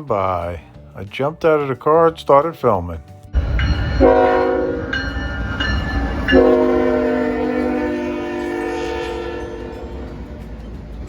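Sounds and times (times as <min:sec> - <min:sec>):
locomotive air horn blast: 0:03.4 - 0:05.0, 0:05.9 - 0:10.3
train rumbling past: 0:03.4 - 0:11.0.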